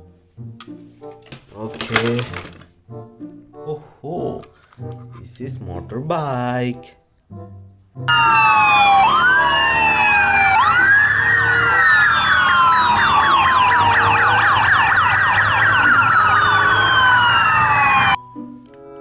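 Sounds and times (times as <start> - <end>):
sirens wailing and yelping: 8.1 - 18.2.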